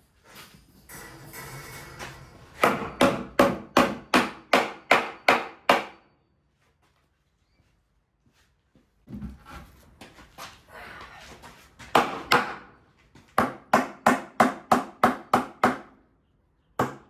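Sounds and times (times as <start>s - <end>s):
hammer striking timber: 2.6s - 6.0s, 11.9s - 12.7s, 13.4s - 16.0s, 16.8s - 17.0s.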